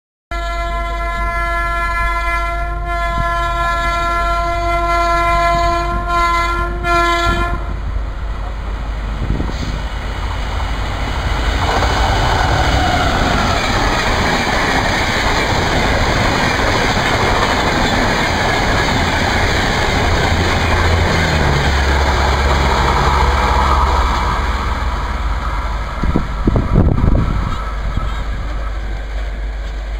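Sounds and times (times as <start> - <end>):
locomotive horn blast: 0.3 - 7.8
train roaring past: 0.5 - 29.9.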